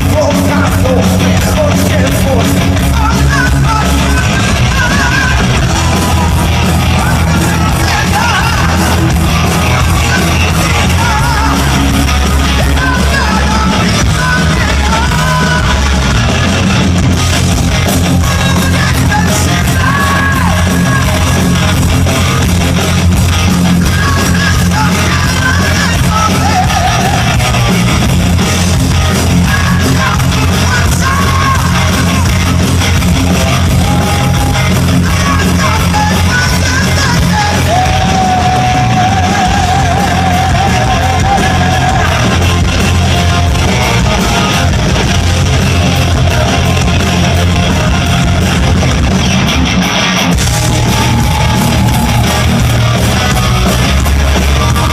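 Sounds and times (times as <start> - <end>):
person yelling and singing: 0.0 - 16.3, 18.0 - 21.8, 23.6 - 27.5, 29.1 - 32.6, 33.5 - 44.9
live heavy rock band: 0.0 - 54.9.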